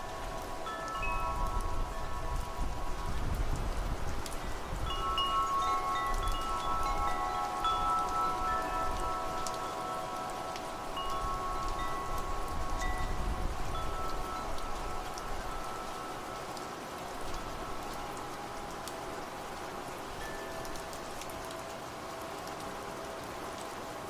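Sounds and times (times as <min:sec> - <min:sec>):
low rumble of wind: 0:00.0 - 0:24.0
wind chimes ringing: 0:00.0 - 0:24.0
raindrop ticks: 0:03.4 - 0:13.1, 0:20.3 - 0:22.8.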